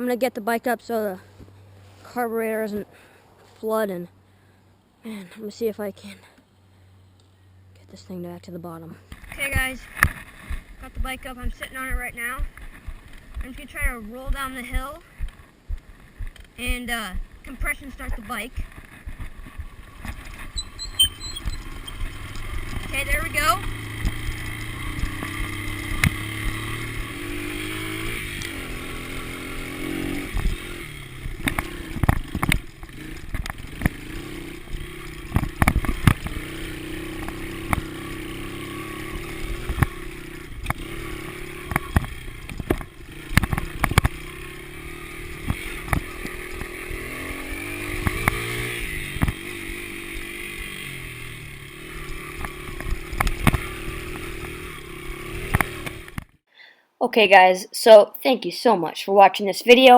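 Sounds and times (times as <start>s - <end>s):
dirt bike engine revving: 9.2s - 56.4s.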